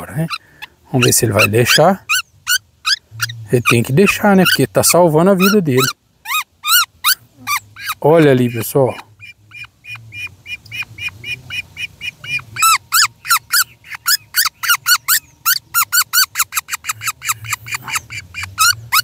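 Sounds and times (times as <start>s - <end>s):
nestling bird chirping rapidly: 0.0s - 19.0s.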